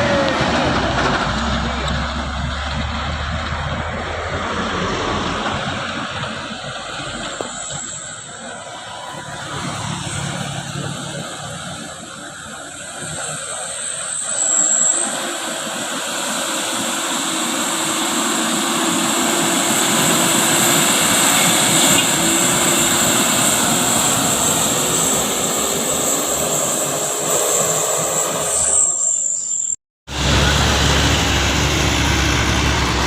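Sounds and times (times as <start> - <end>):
truck engine running under load: 0.0 - 28.7, 30.1 - 33.0.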